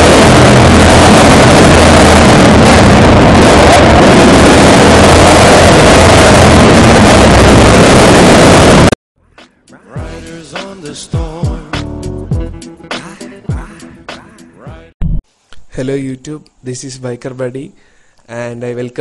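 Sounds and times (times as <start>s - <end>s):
loud motorcycle engine running: 0.0s - 8.9s.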